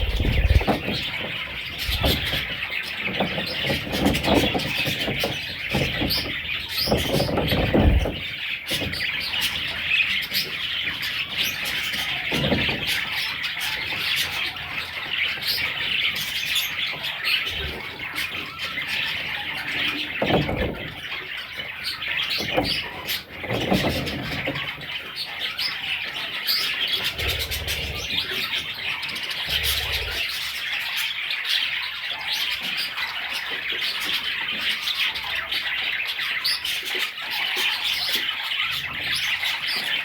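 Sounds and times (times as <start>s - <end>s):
low knocks and bumps: 0.0s - 2.6s
budgerigars chirping and warbling: 0.0s - 40.0s.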